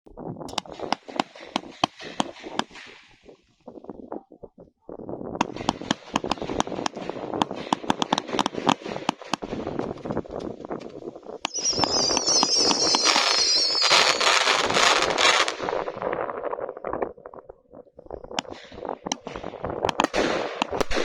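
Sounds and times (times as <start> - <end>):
firework cracks and pops: 0.2 - 4.1, 5.3 - 17.4, 18.3 - 21.0
high wavering firework whistle: 11.5 - 15.6.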